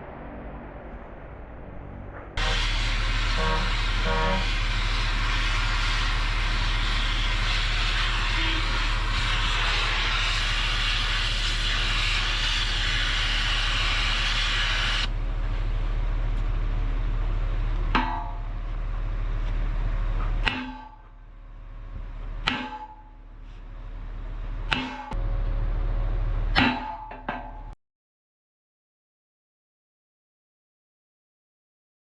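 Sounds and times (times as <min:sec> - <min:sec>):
low machine hum: 0:00.0 - 0:11.2, 0:12.9 - 0:27.8
loud steady hiss: 0:02.4 - 0:15.1.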